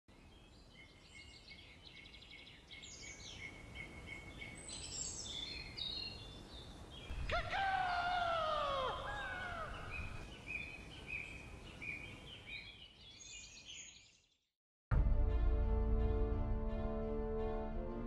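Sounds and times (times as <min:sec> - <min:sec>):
birds chirping and trilling: 0:00.1 - 0:14.4
drawn-out falling cry: 0:07.1 - 0:10.2.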